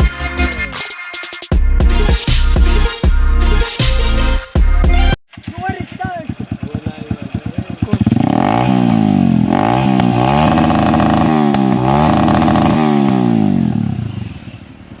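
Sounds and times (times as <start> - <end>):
motorcycle engine revving: 5.3 - 15.0.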